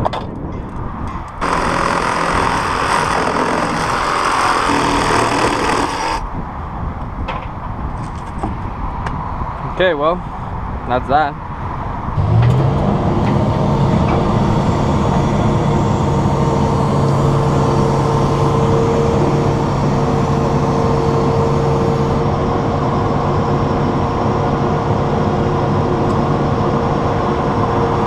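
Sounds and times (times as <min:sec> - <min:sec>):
engine revving and droning: 0:01.4 - 0:06.2, 0:12.2 - 0:28.0.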